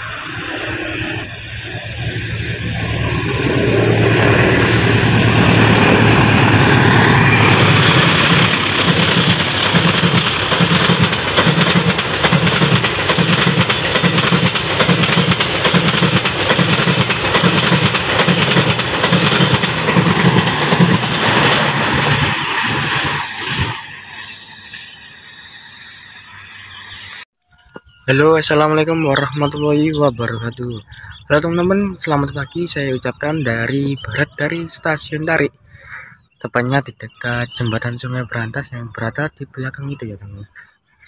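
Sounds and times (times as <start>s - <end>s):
locomotive engine drone: 0.0s - 36.4s
wheels clacking over rail joints: 5.4s - 24.9s.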